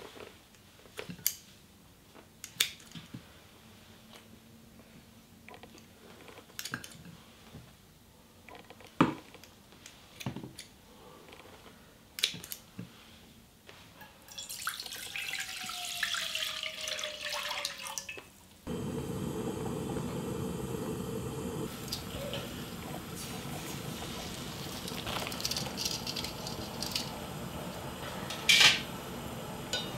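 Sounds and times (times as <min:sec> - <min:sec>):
pot of water boiling: 0:14.3 - 0:18.0, 0:18.7 - 0:29.9
water pouring into metal pot: 0:14.3 - 0:18.2, 0:21.7 - 0:27.8.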